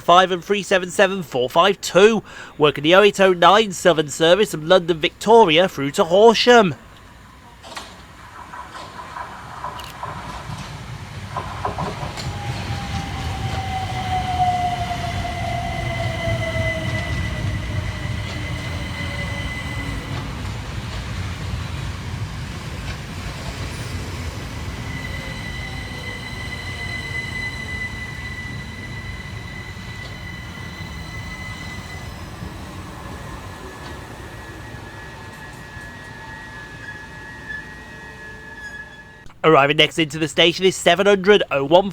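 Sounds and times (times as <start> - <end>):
train wheels rumbling: 0.0 - 39.4
train whine falling in pitch: 3.0 - 39.2
high-pitched brake squeal: 11.9 - 20.6, 23.7 - 39.3.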